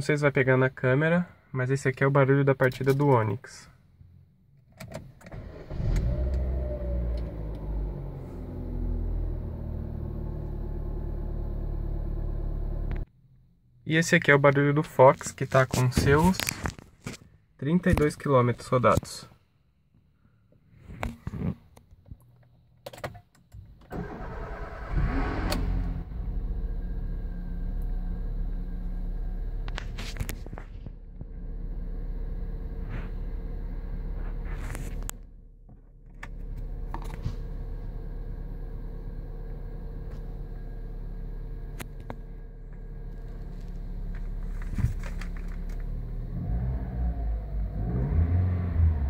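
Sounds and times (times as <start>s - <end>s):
car engine starting and idling: 4.2s - 14.9s, 22.8s - 49.0s
car engine clicks: 39.7s - 46.4s.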